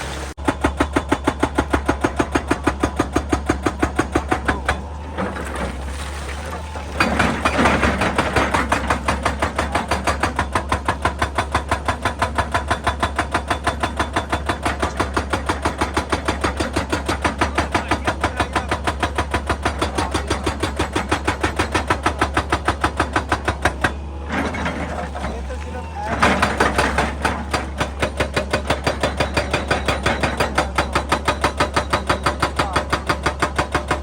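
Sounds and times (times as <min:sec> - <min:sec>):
hydraulic breaker hammering rock: 0:00.1 - 0:34.0
diesel engine humming: 0:21.0 - 0:28.8.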